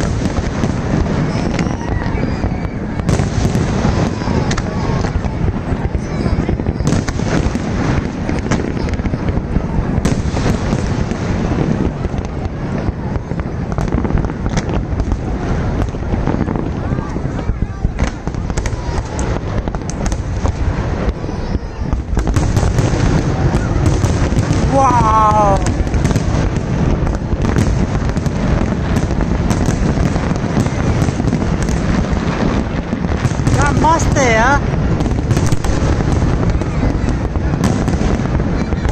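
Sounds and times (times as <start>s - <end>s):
continuous rumble: 0.0s - 38.9s
fireworks crackling and banging: 0.0s - 38.9s.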